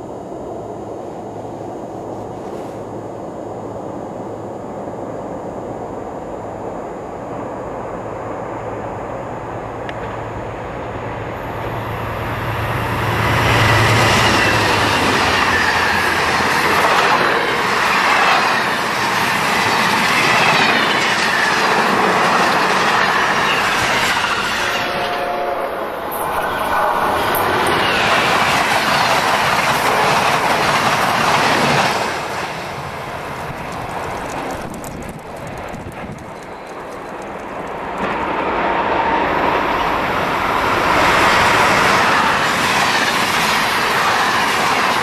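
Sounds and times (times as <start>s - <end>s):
diesel locomotive engine drone: 0.0s - 45.0s
train wheels rolling: 11.2s - 45.0s
clickety-clack over rail joints: 13.4s - 24.8s, 27.3s - 45.0s.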